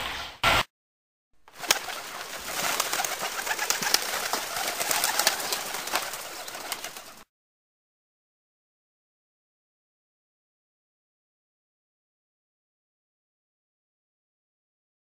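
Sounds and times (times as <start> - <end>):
birds: 1.5 - 7.3.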